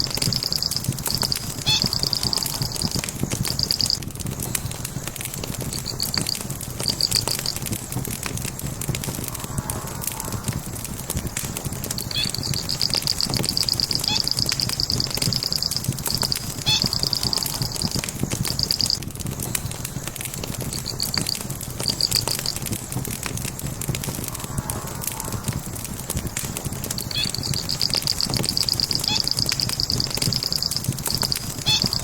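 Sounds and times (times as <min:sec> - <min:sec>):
logs crackling in fireplace: 0:00.0 - 0:32.0.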